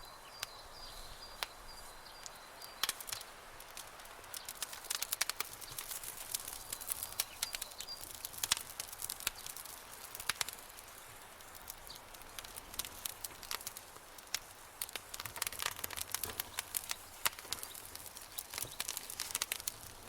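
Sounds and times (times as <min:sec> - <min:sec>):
campfire wood crackling: 0:00.0 - 0:20.0
soft hiss: 0:00.0 - 0:20.0.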